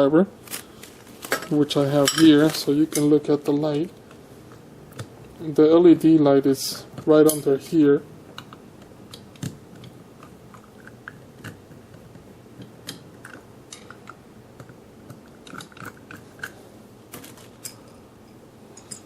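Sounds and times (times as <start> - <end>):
metal parts being handled: 15.4 - 19.0.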